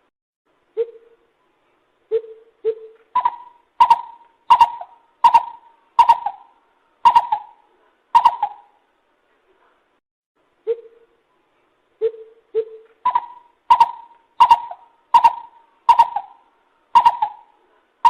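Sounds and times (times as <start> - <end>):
bird calling: 2.1 - 8.8, 12.0 - 17.6.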